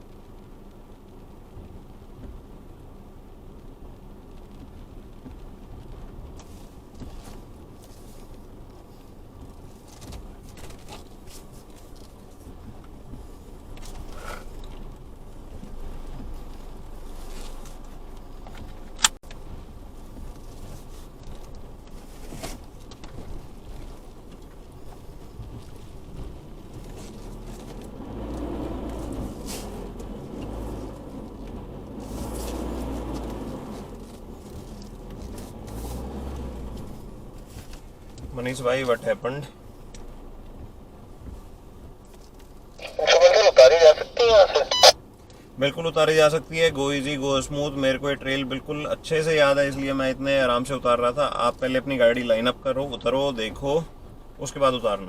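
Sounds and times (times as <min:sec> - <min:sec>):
vehicle clicks and knocks: 0:17.5 - 0:19.5.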